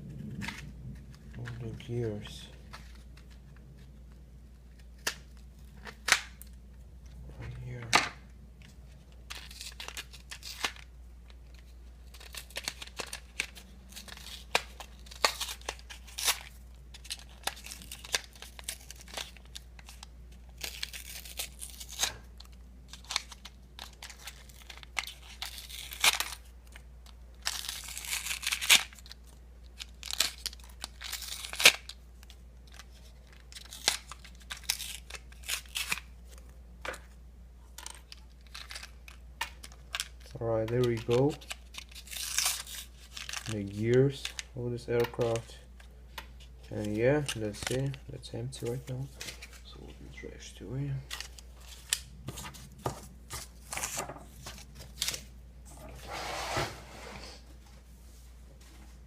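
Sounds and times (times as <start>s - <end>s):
low steady hum: 0.0s - 59.0s
packaging crinkling and rustling: 8.6s - 37.1s, 37.7s - 49.8s, 50.9s - 55.8s
packaging tearing: 9.3s - 10.9s, 11.5s - 26.8s, 27.4s - 36.1s, 37.8s - 44.5s.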